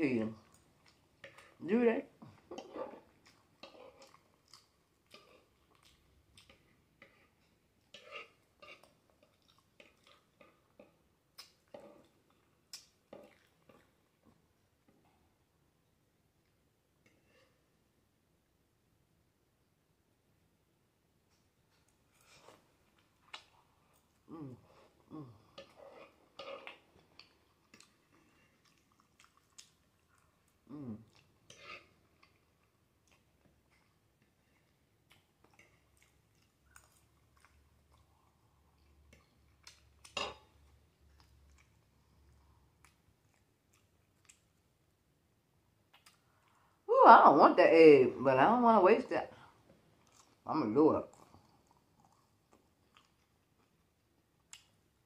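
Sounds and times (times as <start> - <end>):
chewing and lip smacking: 3.1 - 7.1, 8.6 - 14.0, 25.4 - 34.3, 35.0 - 44.7, 45.8 - 46.7, 49.9 - 50.4, 51.1 - 55.0
person humming: 24.3 - 25.4, 30.7 - 31.0.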